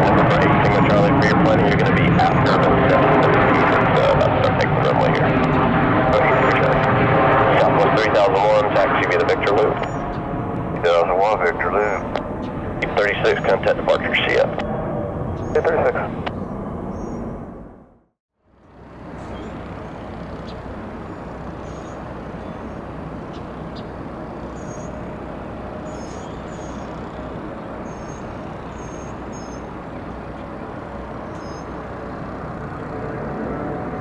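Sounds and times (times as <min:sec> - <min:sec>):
jet engines roaring: 0:00.0 - 0:17.9, 0:18.7 - 0:34.0
small birds chirping: 0:09.4 - 0:17.4, 0:19.2 - 0:32.9.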